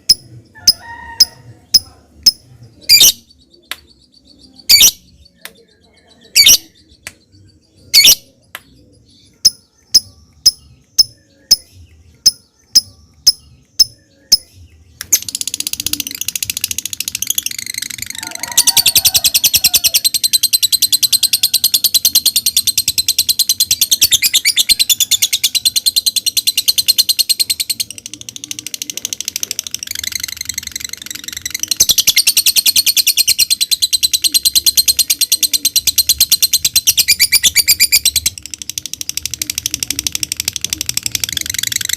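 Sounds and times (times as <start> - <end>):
lovebird high chattering trill: 0.0 - 3.3, 4.6 - 5.1, 6.3 - 6.8, 15.1 - 41.9.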